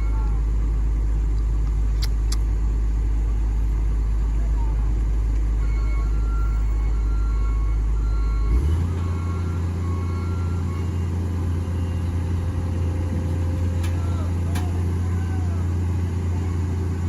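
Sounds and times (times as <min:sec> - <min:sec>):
heavy diesel engine running: 0:00.0 - 0:17.0
faint repeating beeps: 0:05.5 - 0:13.0.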